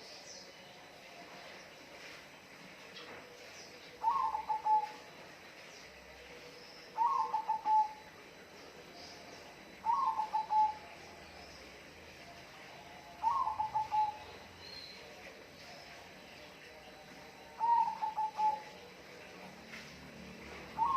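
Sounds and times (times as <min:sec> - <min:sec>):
bird calling: 0:04.0 - 0:05.0, 0:06.9 - 0:08.1, 0:09.8 - 0:10.9, 0:13.2 - 0:14.5, 0:17.6 - 0:18.8.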